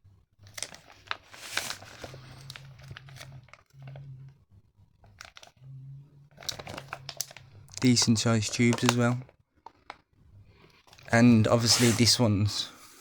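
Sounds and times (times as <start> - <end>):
cardboard and plastic crinkling: 0.4 - 4.1, 5.0 - 5.6, 6.3 - 10.0.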